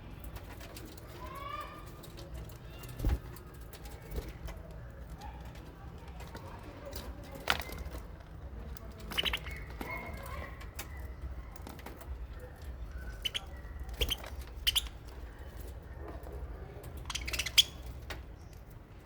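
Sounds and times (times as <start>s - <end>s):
wings fluttering: 2.8s - 4.6s
birds chirping: 6.9s - 19.0s.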